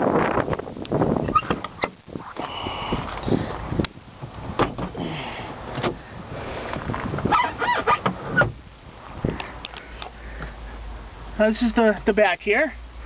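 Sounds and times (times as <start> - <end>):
squeaking: 7.2 - 8.6.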